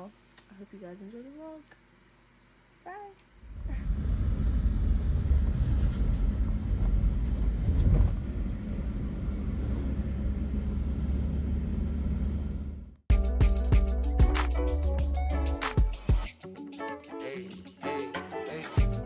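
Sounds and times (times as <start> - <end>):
vehicle rumble: 3.4 - 13.0.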